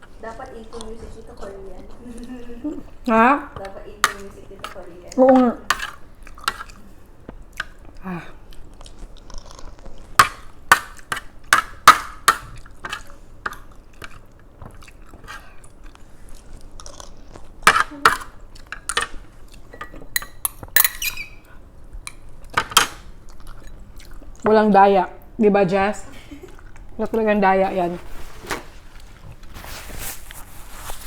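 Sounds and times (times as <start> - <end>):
person chewing: 5.6 - 24.4, 26.2 - 27.0.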